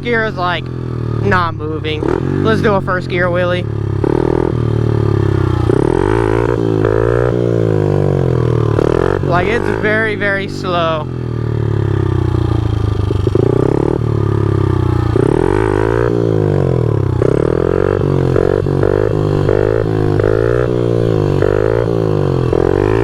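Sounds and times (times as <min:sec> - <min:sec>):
motorbike engine revving: 0:00.0 - 0:23.0.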